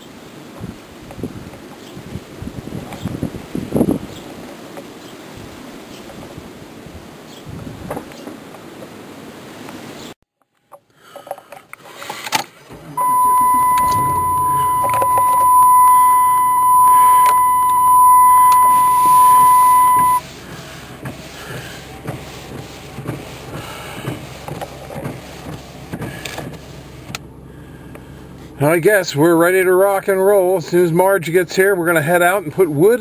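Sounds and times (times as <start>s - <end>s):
low vehicle rumble: 12.6s - 29.4s
high electronic beep: 13.0s - 20.2s.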